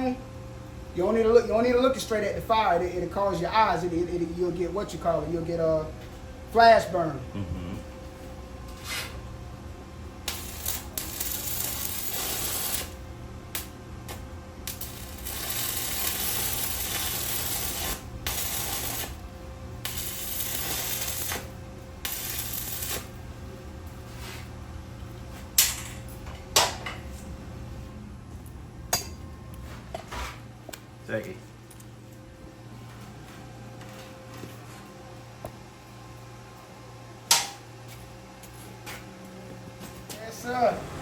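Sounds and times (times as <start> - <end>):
low hum: 5.2 - 36.9
welding arc crackling and hissing: 10.2 - 24.4.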